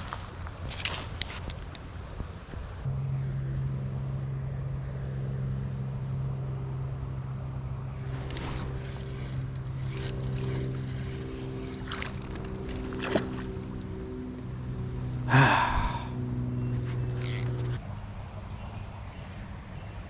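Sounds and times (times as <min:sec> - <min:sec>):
motor running steadily: 0:02.9 - 0:17.9
brief rustling or splashing: 0:08.0 - 0:13.9.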